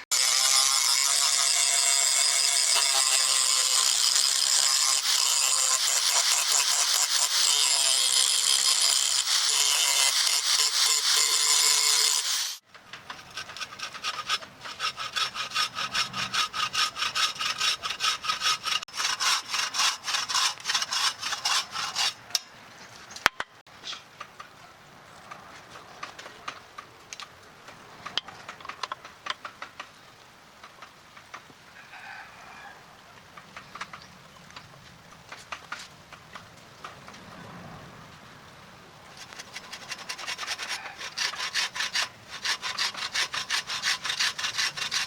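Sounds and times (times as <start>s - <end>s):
tool rasping wood: 0.0s - 22.2s, 39.2s - 45.0s.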